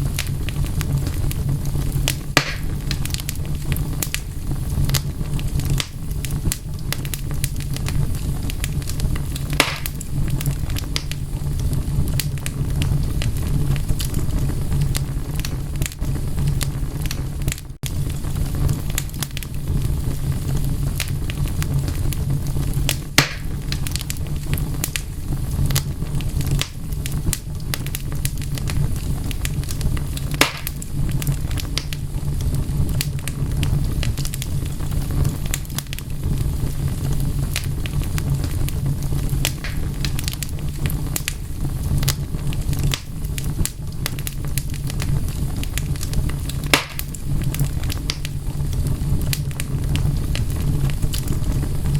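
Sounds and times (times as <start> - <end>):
wood fire crackling: 0.0 - 51.9
snapping wood pops: 2.4 - 2.7, 9.6 - 9.9, 23.2 - 23.5, 30.4 - 30.8, 39.6 - 39.9, 46.7 - 47.1.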